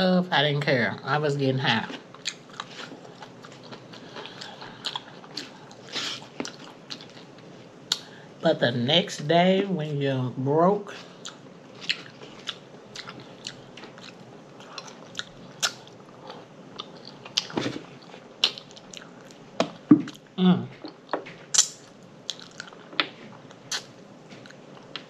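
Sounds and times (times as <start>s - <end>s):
person chewing and lip smacking: 2.1s - 8.1s, 11.1s - 20.2s, 20.8s - 25.0s.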